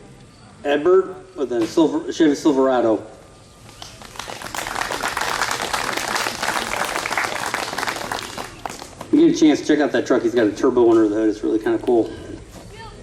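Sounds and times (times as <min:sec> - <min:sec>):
crowd applauding: 0:03.8 - 0:09.1.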